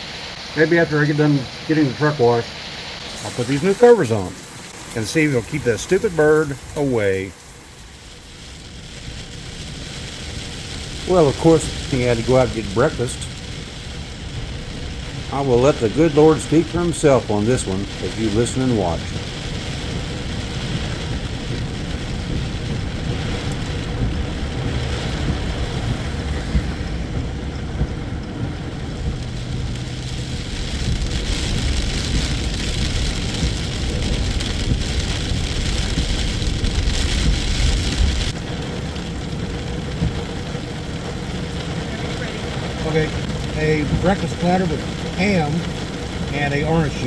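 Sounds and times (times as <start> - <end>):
steady rain: 0.0 - 47.0
low thunder rumble: 2.6 - 47.0.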